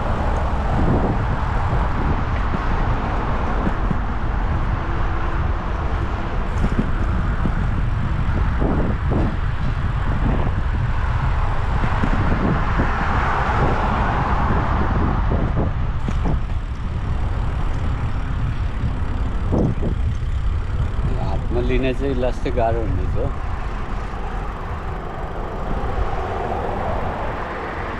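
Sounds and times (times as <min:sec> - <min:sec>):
road and traffic noise: 0:00.0 - 0:27.9
wind rumbling on microphone: 0:00.0 - 0:27.9.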